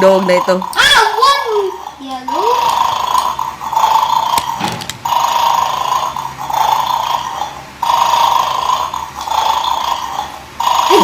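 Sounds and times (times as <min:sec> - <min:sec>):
toy electronic snoring sound: 0:02.3 - 0:11.0.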